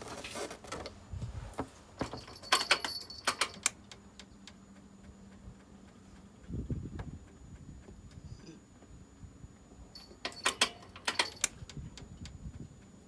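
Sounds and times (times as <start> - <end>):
metallic clicks and clinks: 2.0 - 4.0, 9.9 - 11.8.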